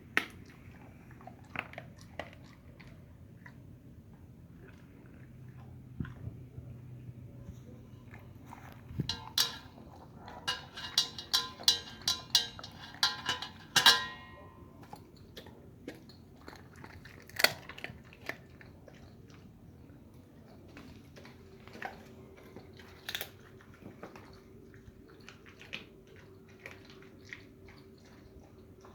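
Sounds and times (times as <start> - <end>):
dog crunching food: 0.0 - 6.6, 8.0 - 19.6, 20.2 - 28.9.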